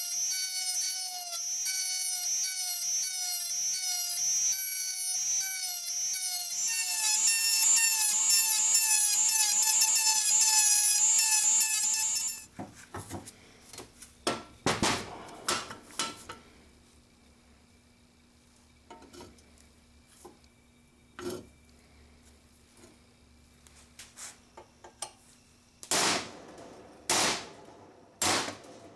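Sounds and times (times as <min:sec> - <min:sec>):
power tool whining: 0:00.0 - 0:12.5.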